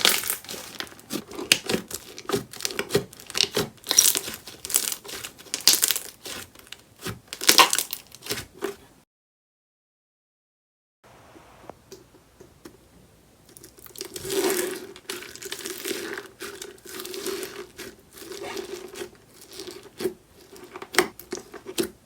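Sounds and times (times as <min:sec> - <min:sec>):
crunchy slime being squeezed: 0:00.0 - 0:08.7.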